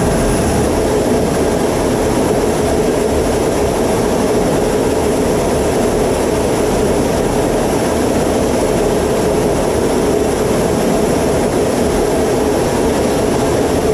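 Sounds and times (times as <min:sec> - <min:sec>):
high engine whine: 0:00.0 - 0:13.9
jet engines rumbling: 0:00.0 - 0:13.9.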